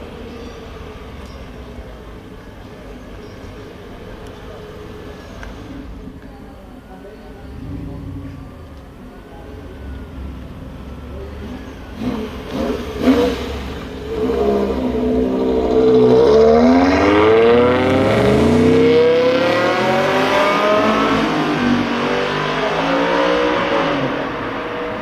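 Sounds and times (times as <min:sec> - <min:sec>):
car engine revving and accelerating: 0:07.4 - 0:09.0, 0:09.8 - 0:25.0.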